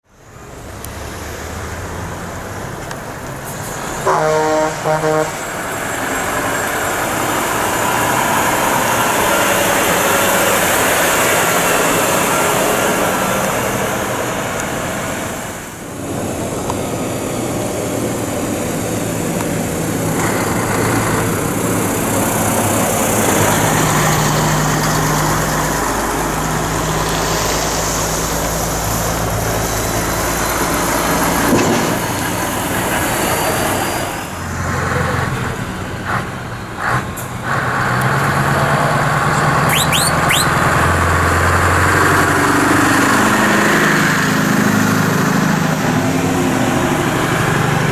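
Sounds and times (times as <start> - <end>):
lorry diesel engines driving past: 0.1 - 47.9
horn blasts: 4.0 - 5.6, 39.7 - 40.6.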